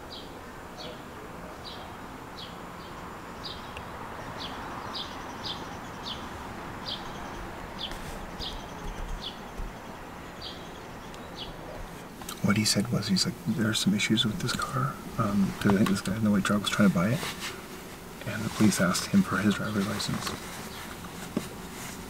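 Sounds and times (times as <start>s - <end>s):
steady background hiss: 0.0s - 22.0s
small bird chirping: 1.6s - 12.3s.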